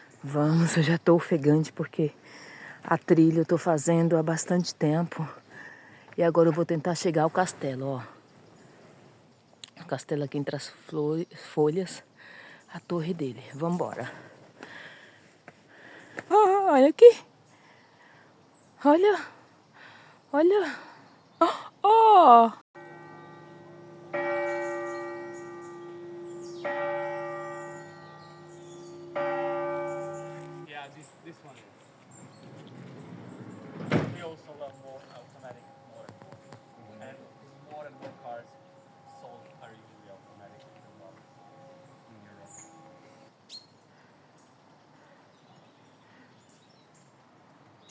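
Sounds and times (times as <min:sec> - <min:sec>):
birds chirping faintly: 0:00.0 - 0:47.9
church bell tolling: 0:22.8 - 0:30.7, 0:34.2 - 0:43.3
downward-sweeping bird chirp: 0:22.8 - 0:44.6.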